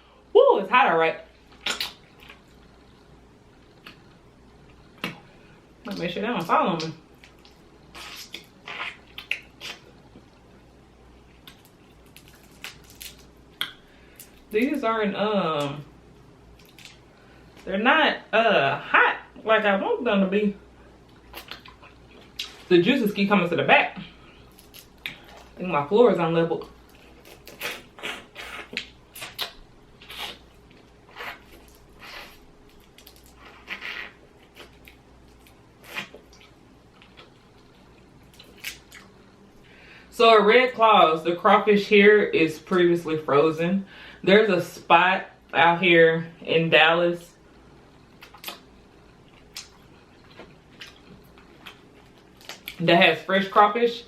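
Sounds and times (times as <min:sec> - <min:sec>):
crawfish being peeled by hand: 0:11.4 - 0:14.8.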